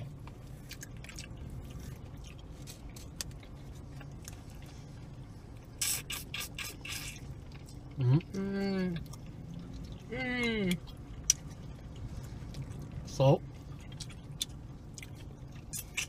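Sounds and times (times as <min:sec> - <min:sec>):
chewing and wet mouth sounds: 0:00.0 - 0:16.0
steady low hum: 0:00.0 - 0:16.0.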